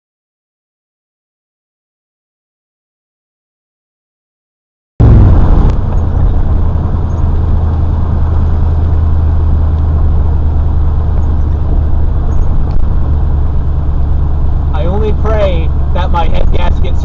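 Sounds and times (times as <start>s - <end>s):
road noise: 5.0s - 17.0s
truck engine droning: 5.0s - 17.0s.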